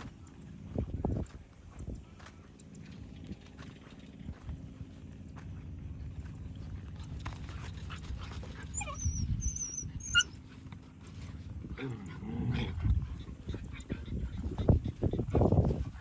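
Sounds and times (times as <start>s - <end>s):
dogs whining playfully: 7.8s - 10.6s.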